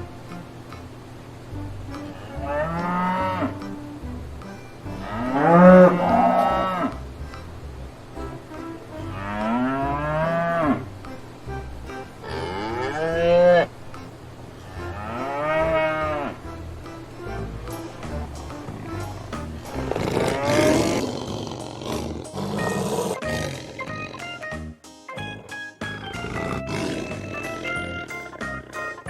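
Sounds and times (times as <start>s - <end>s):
cattle mooing: 2.1s - 3.6s, 5.0s - 7.0s, 9.0s - 10.9s, 12.2s - 13.7s, 14.6s - 16.5s, 18.2s - 24.2s, 26.2s - 29.0s.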